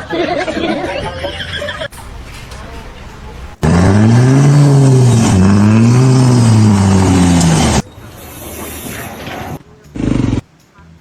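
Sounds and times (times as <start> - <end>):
engine revving: 3.6 - 8.2, 8.8 - 10.5.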